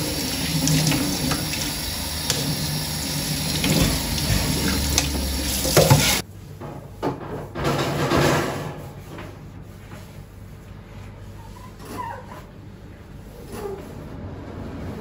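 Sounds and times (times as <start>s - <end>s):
water running from a tap: 0.0s - 6.2s.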